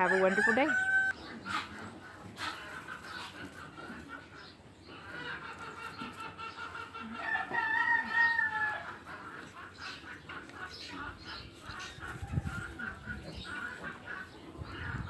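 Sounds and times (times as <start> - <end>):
rooster crowing: 0.0 - 1.2, 7.2 - 8.9
chickens calling: 0.0 - 15.0.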